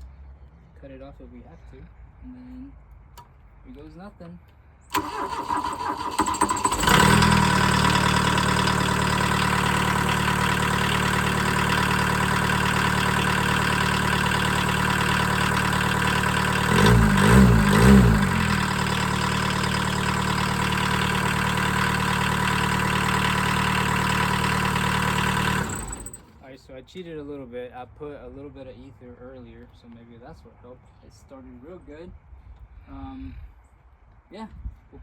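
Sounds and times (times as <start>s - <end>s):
engine revving: 4.9s - 26.3s
diesel engine idling: 4.9s - 26.4s.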